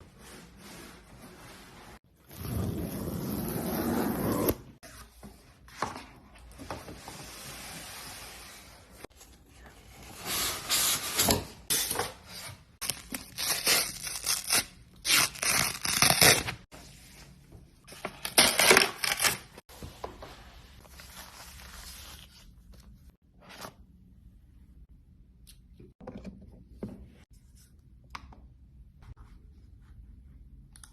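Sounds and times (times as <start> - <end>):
packaging tearing: 12.8 - 16.6.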